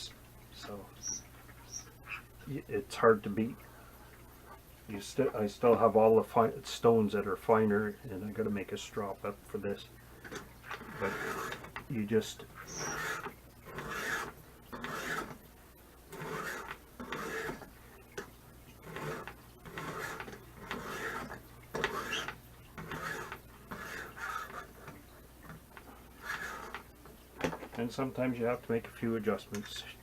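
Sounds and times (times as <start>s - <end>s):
sharpening stone scraping blade: 12.6s - 13.2s, 19.0s - 22.3s.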